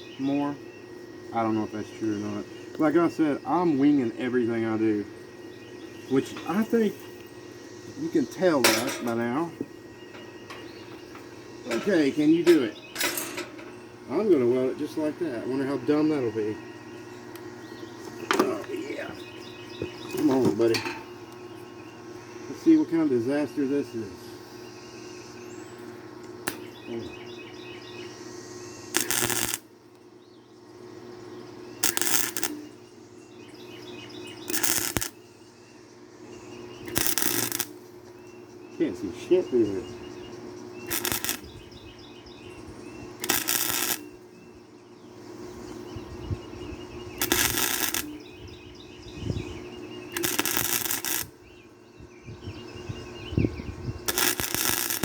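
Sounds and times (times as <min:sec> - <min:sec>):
welder crackling bursts: 0:01.4 - 0:21.4, 0:26.2 - 0:27.0, 0:28.0 - 0:30.1, 0:30.8 - 0:32.8, 0:34.0 - 0:35.4, 0:36.4 - 0:38.1, 0:38.8 - 0:44.3, 0:47.0 - 0:48.4, 0:49.6 - 0:51.5, 0:54.0 - 0:55.0.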